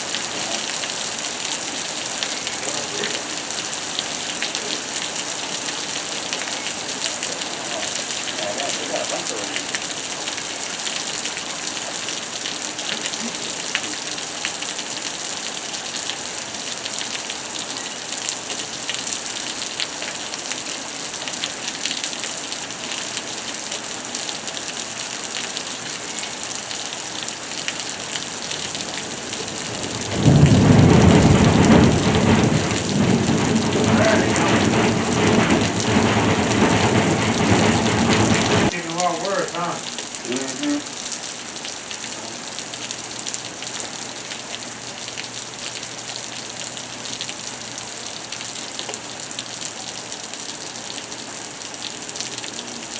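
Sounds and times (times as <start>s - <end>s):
rain falling: 0.0s - 52.9s
thunder rumble: 27.9s - 39.0s.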